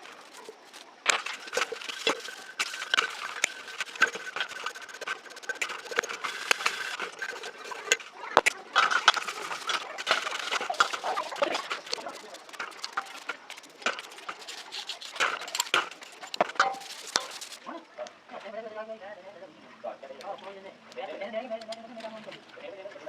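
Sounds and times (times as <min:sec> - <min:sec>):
uneven scraping: 0:00.0 - 0:17.6.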